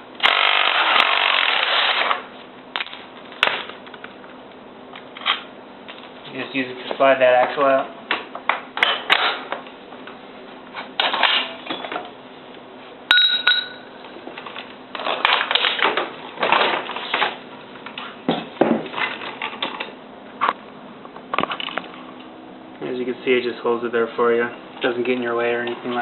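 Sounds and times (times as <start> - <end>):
sharp metallic ping: 13.1 - 14.0.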